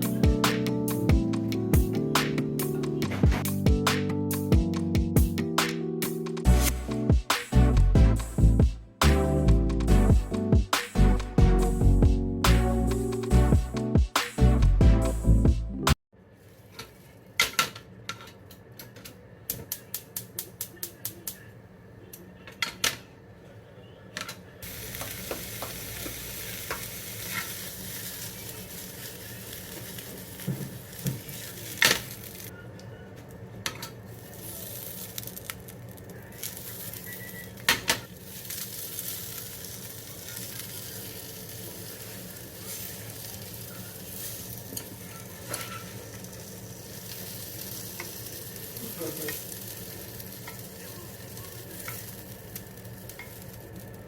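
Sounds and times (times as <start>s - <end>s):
sausage sizzling in a pan: 24.6s - 32.5s, 34.0s - 54.0s.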